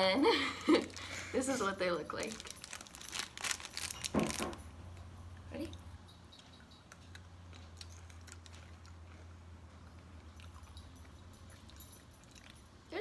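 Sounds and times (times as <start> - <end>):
crisp pretzel crunches: 2.2 - 4.6, 7.1 - 9.3.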